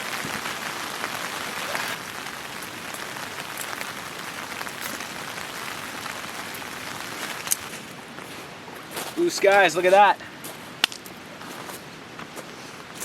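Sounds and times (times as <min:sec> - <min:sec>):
sharp water drips: 0:00.0 - 0:08.0
heavy rain falling: 0:00.0 - 0:08.6.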